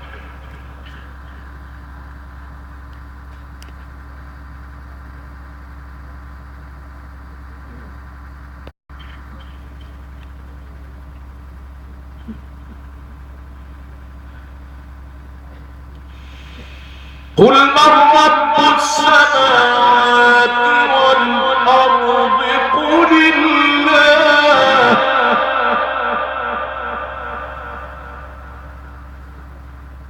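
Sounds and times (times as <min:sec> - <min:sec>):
low electrical hum: 0:00.0 - 0:17.4, 0:25.0 - 0:30.0
faint hiss: 0:16.1 - 0:17.4.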